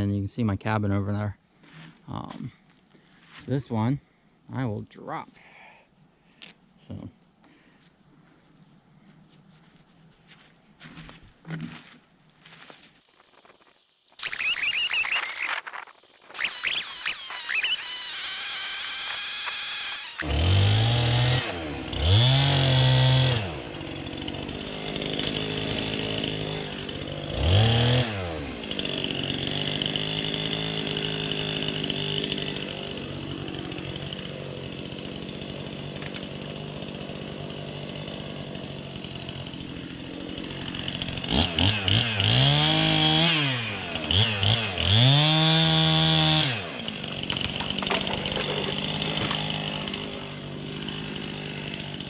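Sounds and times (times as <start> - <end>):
chainsaw idling and revving: 13.0 - 52.0.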